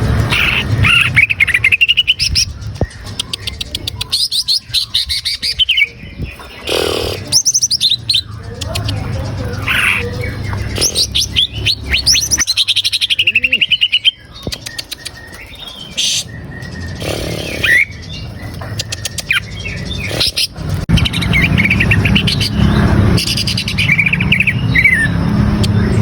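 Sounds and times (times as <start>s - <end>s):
bird singing loudly: 3.1s - 26.0s.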